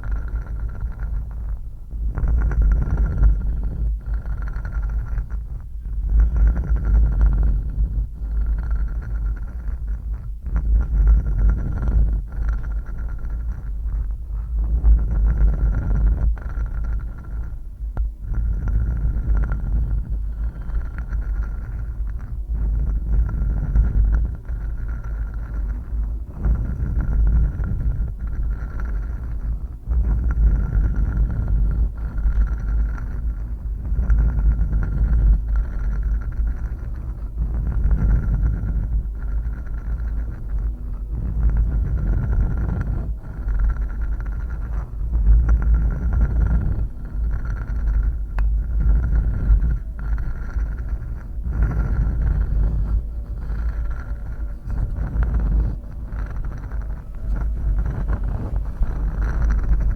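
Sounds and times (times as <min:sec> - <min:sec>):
faint steady hum: 0:00.0 - 0:59.9
heavy low rumble: 0:00.0 - 0:59.9
scratching and rubbing: 0:18.3 - 0:59.9.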